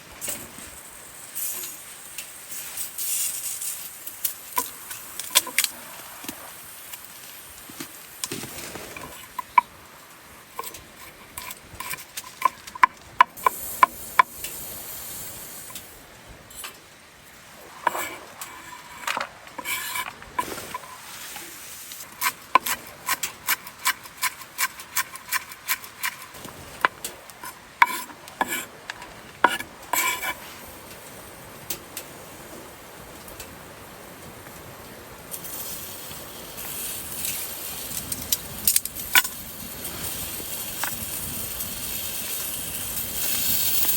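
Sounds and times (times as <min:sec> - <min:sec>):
metal utensil scraping metal pot: 0:10.6 - 0:13.6, 0:17.8 - 0:21.1, 0:22.0 - 0:30.4.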